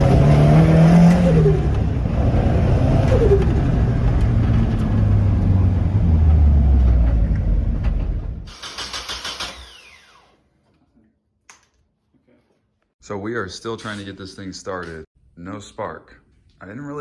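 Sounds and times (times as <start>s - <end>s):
car engine running: 0.0s - 8.5s.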